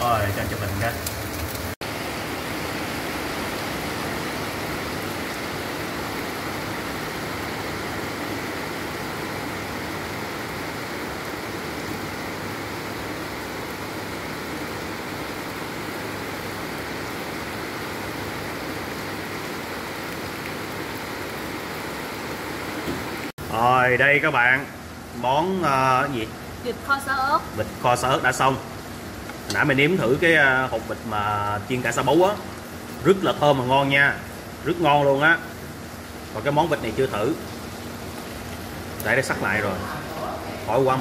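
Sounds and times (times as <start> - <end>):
heavy rain pouring: 0.0 - 41.0.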